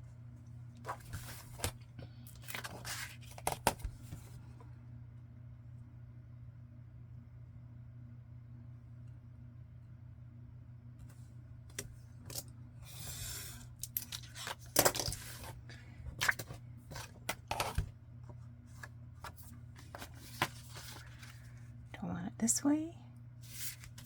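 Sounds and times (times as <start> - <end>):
low background hum: 0.0 - 24.0
paper sliding rustle: 0.8 - 4.4, 12.8 - 17.8, 18.7 - 21.6, 23.4 - 24.0.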